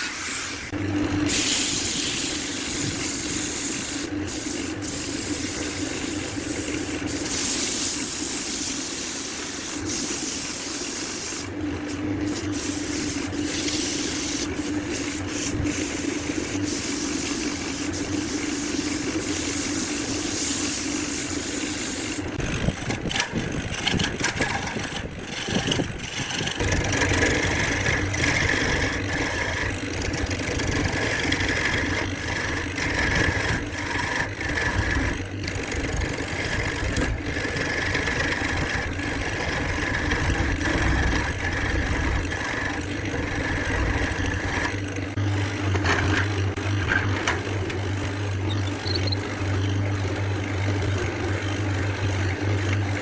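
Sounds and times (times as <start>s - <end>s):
power tool motor running: 0.0s - 53.0s.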